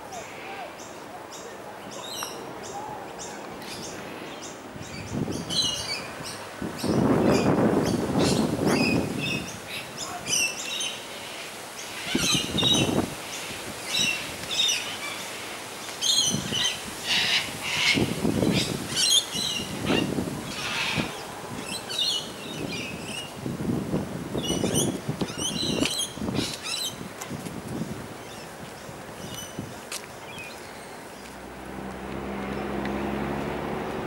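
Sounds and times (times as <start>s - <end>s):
birds chirping: 0.0s - 23.4s, 24.3s - 27.1s, 27.7s - 34.0s
low rumbles: 31.2s - 34.0s.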